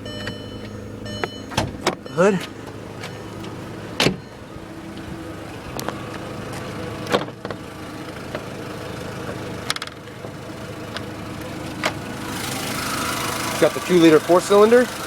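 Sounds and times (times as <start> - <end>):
hood clicks and clunks: 0.0 - 5.1, 5.7 - 8.5, 9.2 - 12.1
car engine idling: 0.0 - 15.0.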